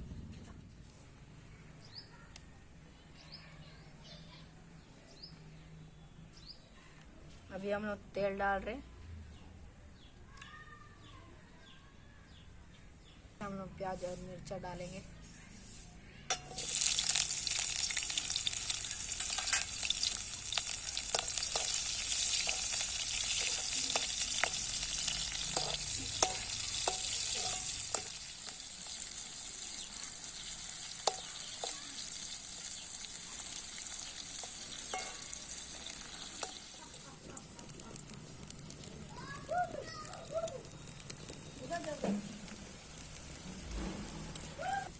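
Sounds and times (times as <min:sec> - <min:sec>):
spoon scraping a pan: 0:15.6 - 0:28.6, 0:30.8 - 0:31.8, 0:34.3 - 0:36.7
vegetables sizzling in hot oil: 0:16.3 - 0:44.9.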